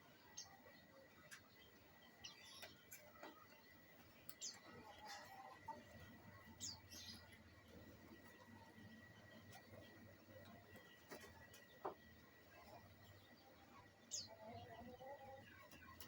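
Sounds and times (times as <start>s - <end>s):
canary chirping: 6.0s - 9.6s.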